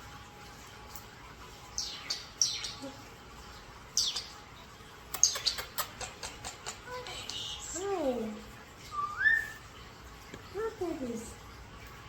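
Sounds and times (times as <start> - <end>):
pet birds chirping: 1.6 - 9.8.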